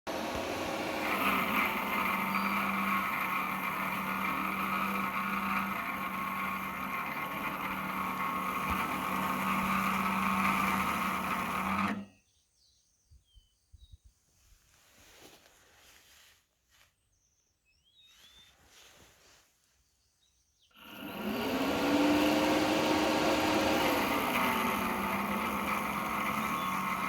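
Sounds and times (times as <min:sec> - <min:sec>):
electric fan humming and hissing: 0:00.1 - 0:12.0, 0:20.8 - 0:27.0.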